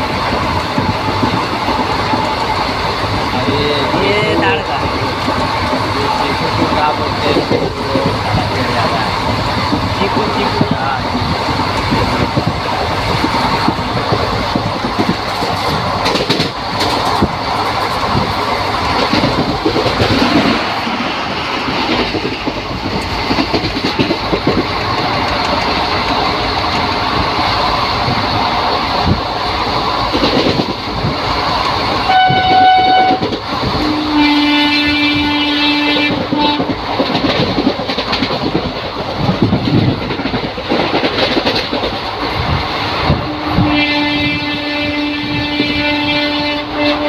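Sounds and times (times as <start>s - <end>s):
wheels clacking over rail joints: 0.0s - 43.2s
moving train rumble and rattle: 0.0s - 47.0s
train horn blasts: 32.0s - 36.7s, 43.3s - 47.0s.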